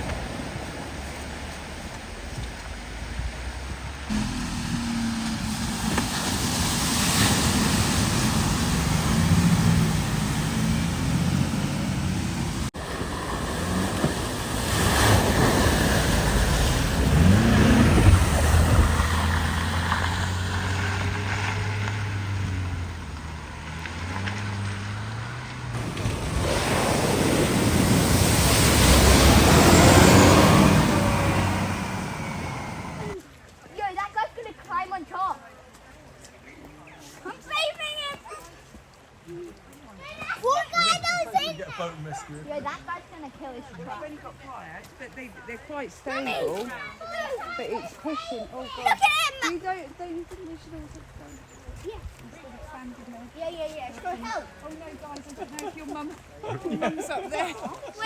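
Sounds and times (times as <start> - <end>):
vehicle engines running: 0.0 - 33.2
water rushing and splashing: 0.0 - 33.2.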